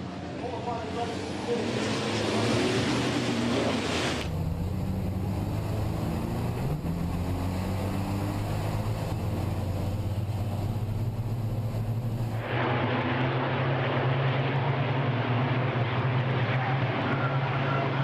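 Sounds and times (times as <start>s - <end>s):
diesel engine running under load: 4.2s - 18.0s.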